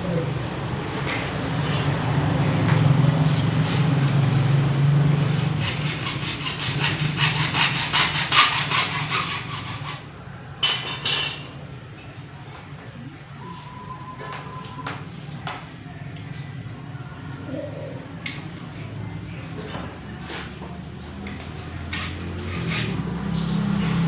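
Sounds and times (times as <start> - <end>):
hand saw cutting: 5.6 - 10.1, 21.4 - 24.0
short scrapes: 21.9 - 24.0.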